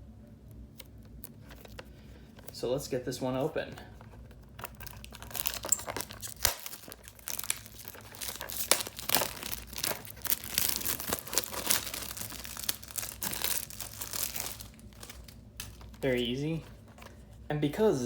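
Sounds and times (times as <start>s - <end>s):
plastic shrink-wrap crinkling: 3.6s - 17.3s.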